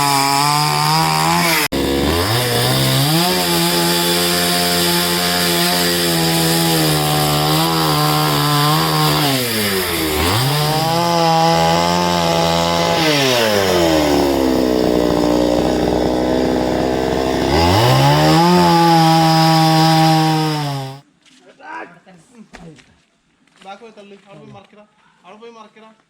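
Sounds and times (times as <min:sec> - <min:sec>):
chainsaw cutting wood: 0:00.0 - 0:21.0.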